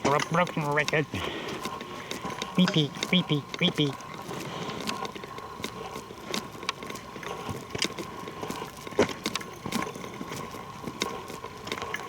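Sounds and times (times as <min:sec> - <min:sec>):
footsteps crunching on trail: 0:00.0 - 0:12.0
faint steady high tone: 0:02.6 - 0:04.0.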